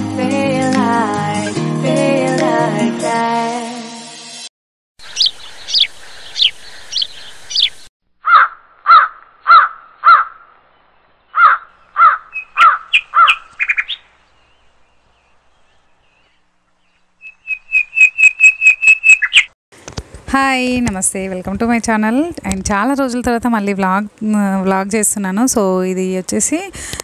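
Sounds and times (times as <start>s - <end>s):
birds chirping: 5.0s - 19.6s
loud repeated bird calls: 5.0s - 19.6s
fast whistled notes: 17.2s - 19.5s.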